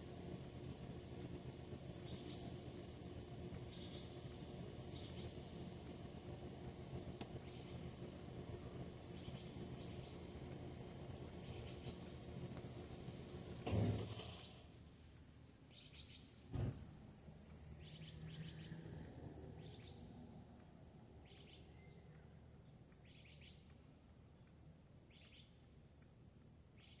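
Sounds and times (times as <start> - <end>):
small bird chirping: 2.0 - 2.6, 3.7 - 4.2, 4.9 - 5.4, 9.1 - 10.4, 15.7 - 16.5, 17.6 - 27.0
low thump: 16.5 - 17.0.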